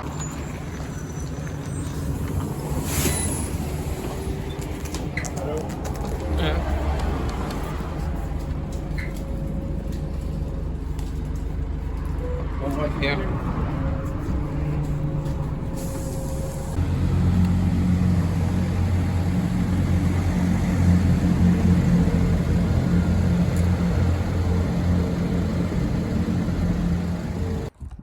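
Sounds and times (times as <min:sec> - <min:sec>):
bus engine droning: 0:00.0 - 0:27.7.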